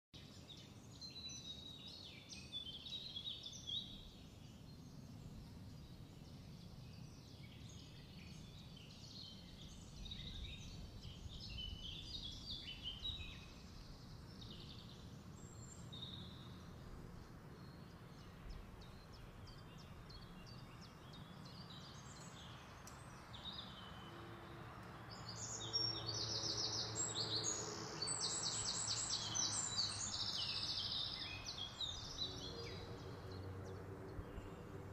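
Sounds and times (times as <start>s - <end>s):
low background noise: 0.2s - 34.9s
small birds chirping: 0.2s - 34.9s.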